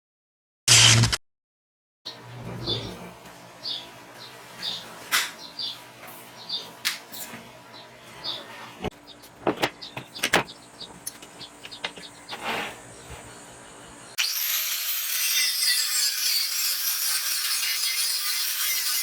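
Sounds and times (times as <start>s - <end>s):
grinder grinding metal: 14.2s - 19.0s.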